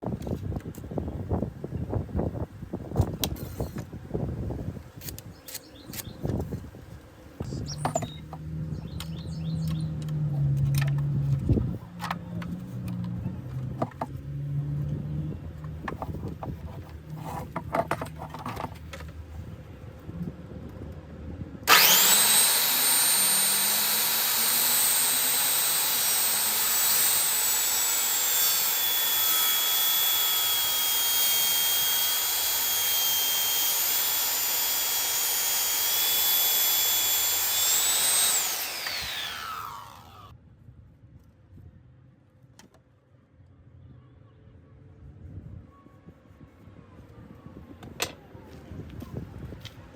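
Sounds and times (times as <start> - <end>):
knocks and clicks of handling lumber: 10.0 - 14.2, 15.8 - 19.2
circular saw running: 21.7 - 40.3.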